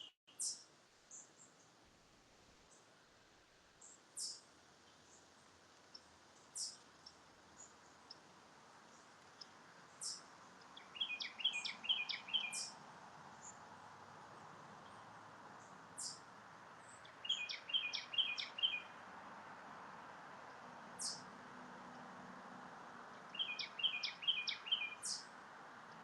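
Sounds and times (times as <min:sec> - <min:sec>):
songbirds singing: 0:00.0 - 0:01.8, 0:03.8 - 0:22.2, 0:22.8 - 0:26.0
distant traffic hiss: 0:00.0 - 0:26.0
sharp high bird chirps: 0:10.9 - 0:12.7, 0:17.2 - 0:18.9, 0:23.4 - 0:25.2.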